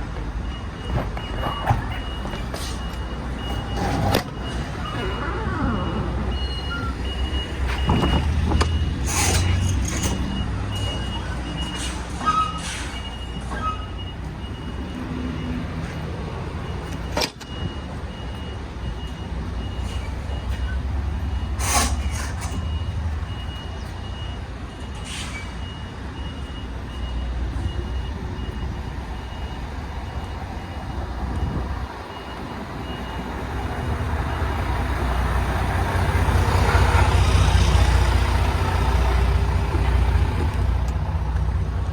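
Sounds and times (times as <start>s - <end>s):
reversing alarm beeping: 0.0s - 41.1s
truck diesel engine running: 25.8s - 41.9s.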